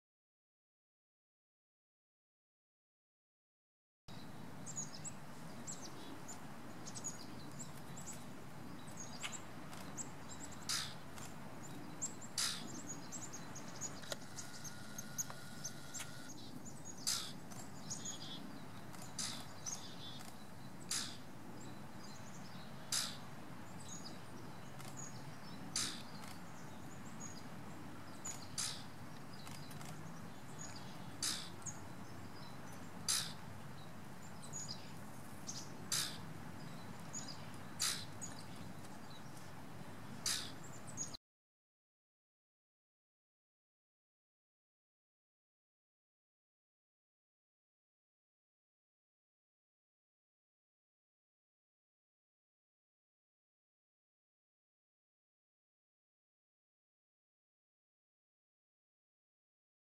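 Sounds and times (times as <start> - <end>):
birds chirping: 4.1 - 41.2
sharp bird call: 37.8 - 38.1, 40.2 - 40.6.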